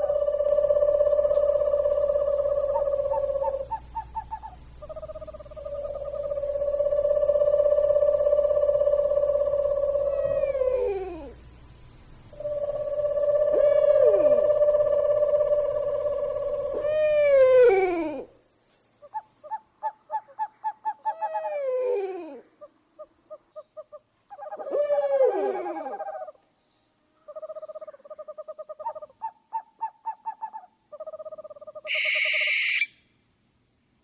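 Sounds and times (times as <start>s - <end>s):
animal calls falling in pitch: 0.0s - 11.4s, 12.4s - 18.3s.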